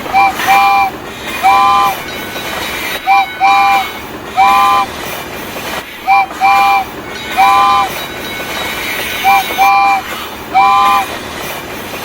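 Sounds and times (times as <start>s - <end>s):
multi-note train horn: 0.0s - 2.1s, 3.0s - 4.9s, 6.0s - 8.0s, 9.2s - 11.2s
running train noise: 0.0s - 12.0s.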